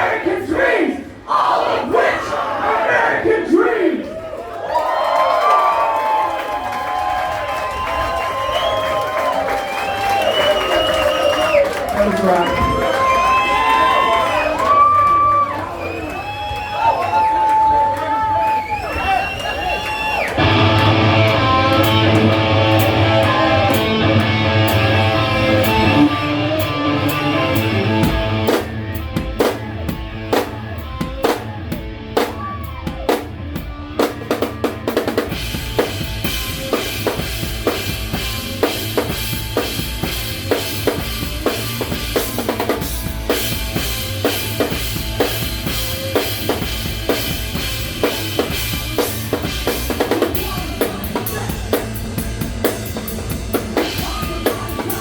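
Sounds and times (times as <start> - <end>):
live rock band playing: 20.3 - 55.0
guitar and bass chord ringing: 20.4 - 29.0.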